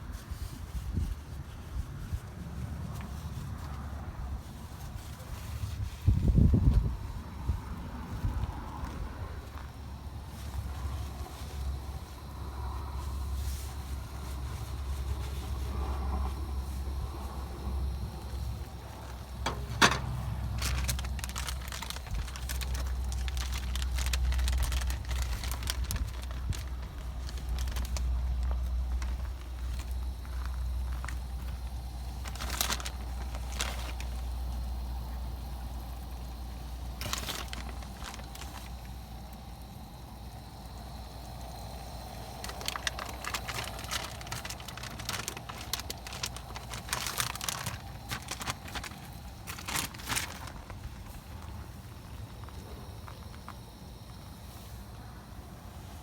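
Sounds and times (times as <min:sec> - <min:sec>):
wind buffeting microphone: 0:04.2 - 0:12.8, 0:15.6 - 0:31.0
crackles and clicks: 0:08.7 - 0:54.3.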